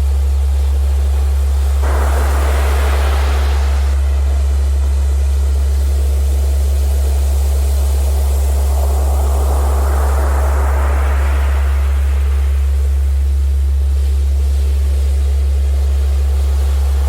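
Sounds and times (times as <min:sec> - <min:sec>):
steady low pure tone: 0:00.0 - 0:17.0
ocean surf: 0:01.8 - 0:04.8, 0:08.0 - 0:13.3.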